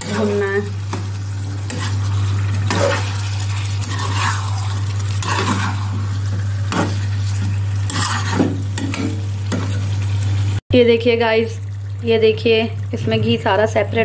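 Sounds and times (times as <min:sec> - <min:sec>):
chicken sizzling in pan: 0:00.0 - 0:10.6
metal spatula scraping pan: 0:01.6 - 0:06.1, 0:06.7 - 0:09.8.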